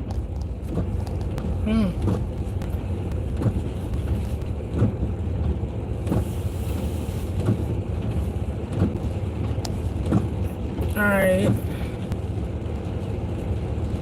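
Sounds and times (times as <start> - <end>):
soft regular ticking: 0.0 - 5.6
car road rumble: 0.0 - 14.0.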